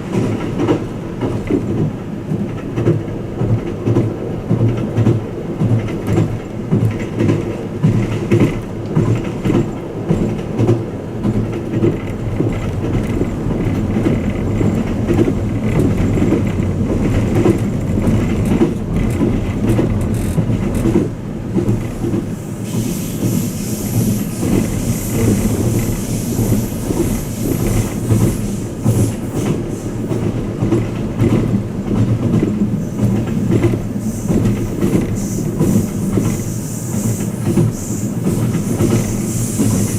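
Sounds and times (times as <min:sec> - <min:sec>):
train rumble from inside: 0:00.0 - 0:39.9
wheels clicking over rail joints: 0:00.1 - 0:22.3.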